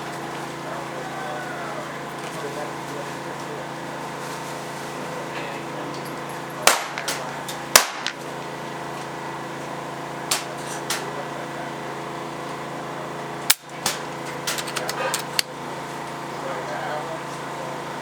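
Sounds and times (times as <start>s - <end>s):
air rifle shots cracking: 6.6s - 8.4s.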